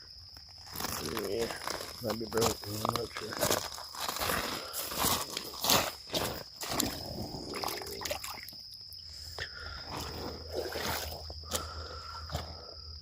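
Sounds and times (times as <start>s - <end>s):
high insect trill: 0.0s - 13.0s
shallow water splashing: 4.2s - 9.0s, 9.9s - 11.8s.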